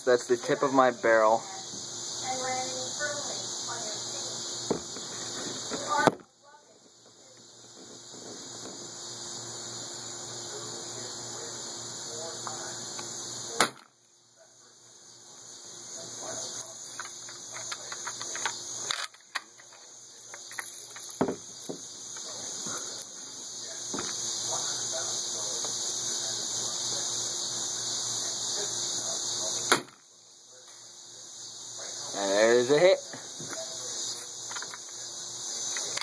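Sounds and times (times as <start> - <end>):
steady high hiss: 0.0 - 36.0
bb gun shots: 13.6 - 13.9, 29.7 - 30.0.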